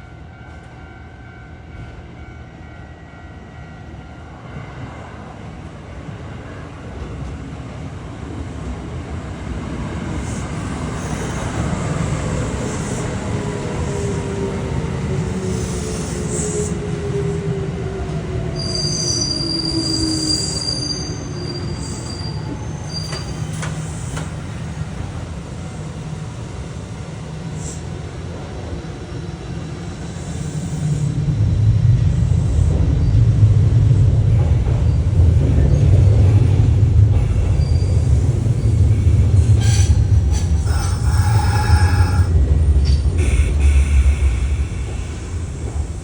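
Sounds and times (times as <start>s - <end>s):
train wheels rumbling on rail: 0.0s - 46.0s
train motor whine: 37.2s - 46.0s.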